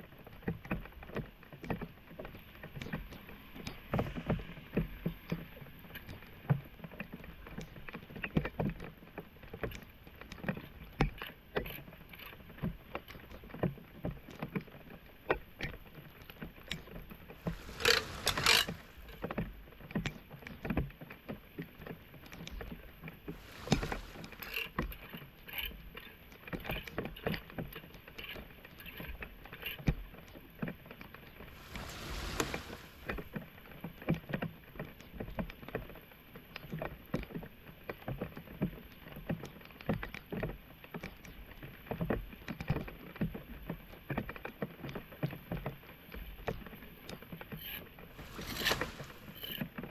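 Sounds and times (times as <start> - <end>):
water splashing and sloshing: 17.4 - 19.2, 23.4 - 24.7, 31.5 - 33.3, 48.1 - 49.5.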